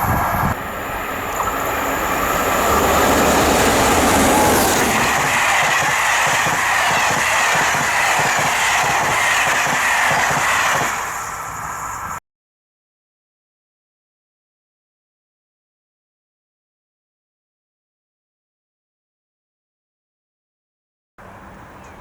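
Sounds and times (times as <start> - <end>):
hissing rush of passing train: 0.0 - 12.2
train wheels clattering on rails: 0.5 - 12.2.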